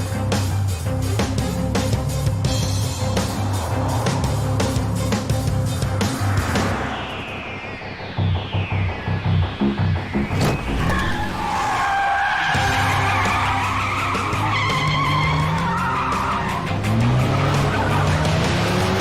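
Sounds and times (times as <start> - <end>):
car engine running: 0.0 - 11.4
car tyres squealing: 10.2 - 19.0.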